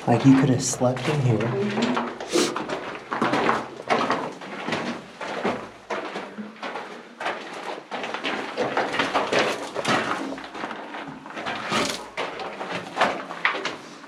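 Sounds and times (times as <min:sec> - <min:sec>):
footsteps crunching on grit and rock: 0:02.0 - 0:14.0.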